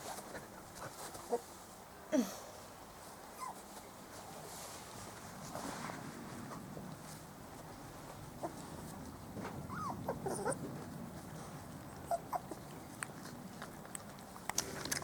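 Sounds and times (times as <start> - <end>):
puppies crying: 9.7 - 10.6, 12.0 - 12.6.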